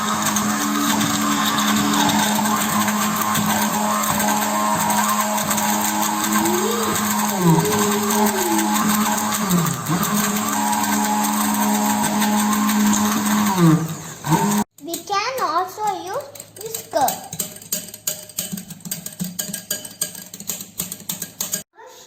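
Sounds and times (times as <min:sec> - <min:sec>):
electric blender running: 0:00.0 - 0:14.7.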